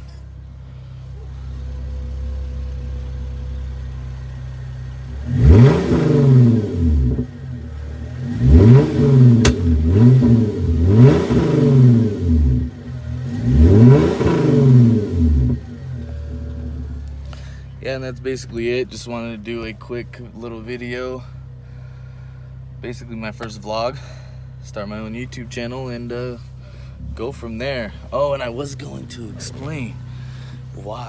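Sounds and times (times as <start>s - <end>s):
car engine idling: 0.0s - 31.0s
car engine revving: 0.0s - 31.0s
exhaust pop: 1.1s - 17.8s.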